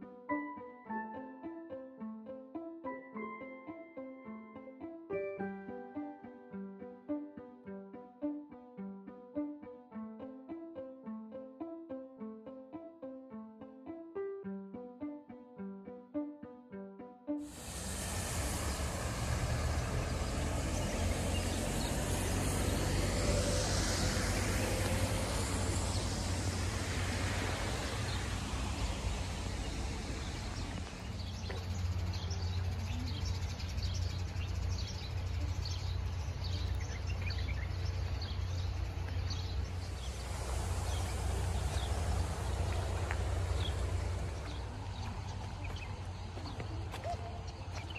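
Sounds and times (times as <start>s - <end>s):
birds chirping: 17.6s - 23.5s, 29.3s - 47.9s
wind buffeting microphone: 36.2s - 47.9s.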